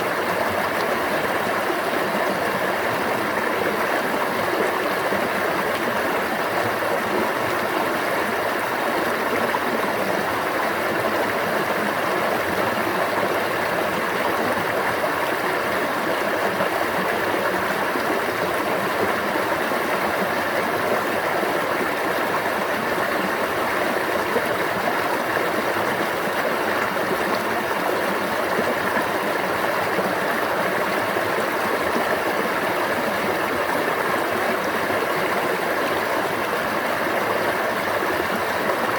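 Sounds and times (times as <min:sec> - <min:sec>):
stream water babbling: 0:00.0 - 0:38.9.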